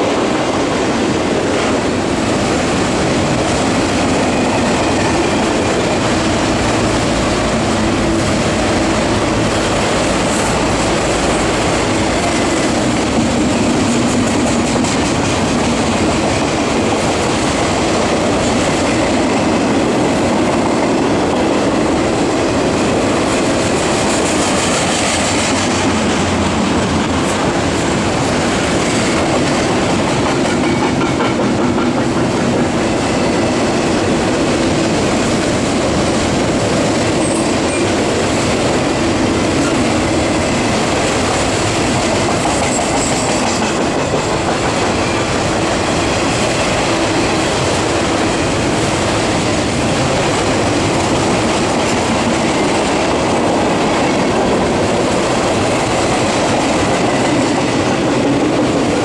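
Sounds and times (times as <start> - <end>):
train wheels rolling on rails: 0.0 - 59.0.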